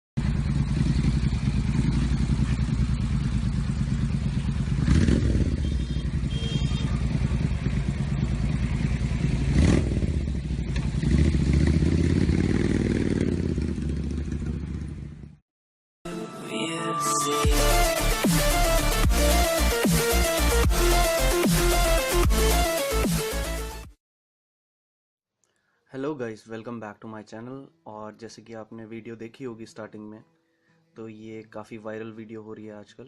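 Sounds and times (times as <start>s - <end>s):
motorcycle engine revving: 0.2s - 15.4s.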